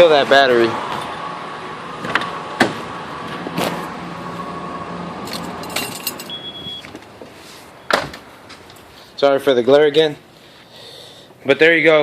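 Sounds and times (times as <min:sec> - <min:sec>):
short high beep: 0:06.3 - 0:06.9.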